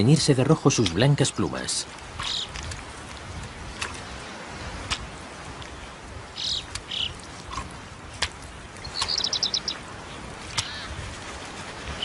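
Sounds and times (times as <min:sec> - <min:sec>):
birds chirping: 0:00.0 - 0:02.6, 0:06.2 - 0:07.4, 0:08.7 - 0:11.0.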